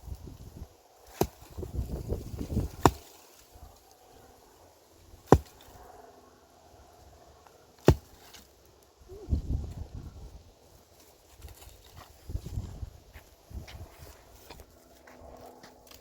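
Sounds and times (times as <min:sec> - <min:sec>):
low shuffling noise: 0:11.0 - 0:15.8.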